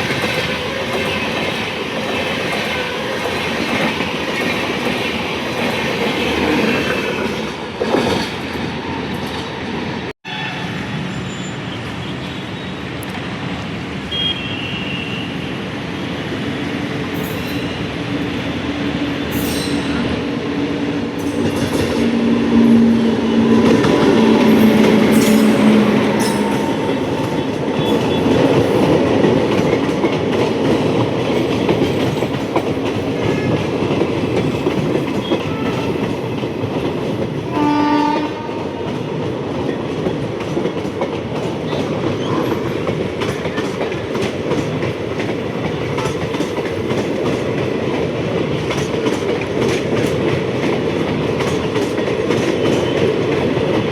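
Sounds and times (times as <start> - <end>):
train rumble and wheel clatter: 0.0 - 53.9
locomotive horn: 35.2 - 36.3, 37.5 - 38.9.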